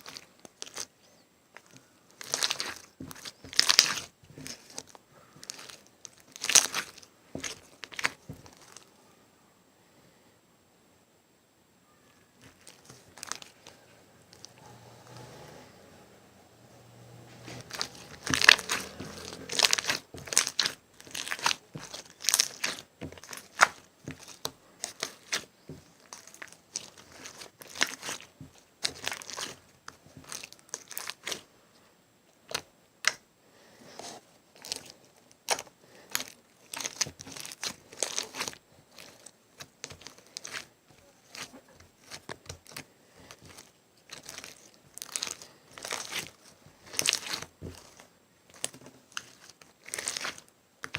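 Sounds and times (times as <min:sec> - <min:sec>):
slime crackling and popping: 0:00.0 - 0:00.9, 0:01.6 - 0:08.8, 0:17.5 - 0:31.4, 0:34.6 - 0:50.9.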